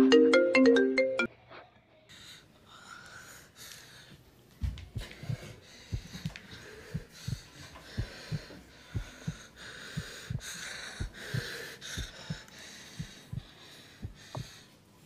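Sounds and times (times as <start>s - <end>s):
heartbeat double beats: 4.6s - 14.6s
breathy hiss: 5.0s - 14.9s.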